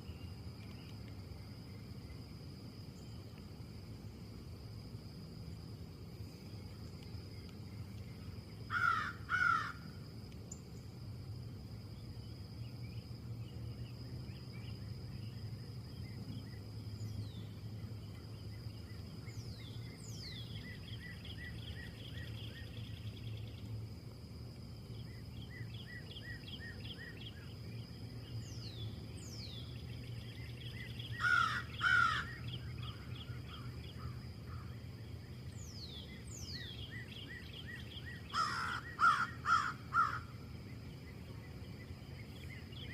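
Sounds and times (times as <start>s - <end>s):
bird calling: 30.8s - 34.2s, 36.6s - 40.3s.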